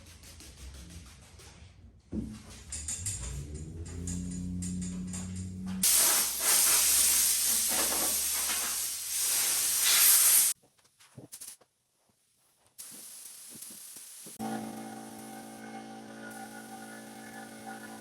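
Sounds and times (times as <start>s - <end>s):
compressed air hissing from air gun: 5.8s - 10.6s.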